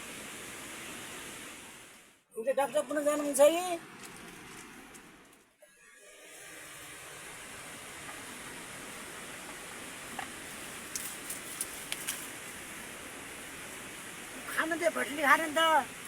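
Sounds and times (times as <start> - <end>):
heavy rain hissing: 0.0 - 4.1, 5.7 - 16.0.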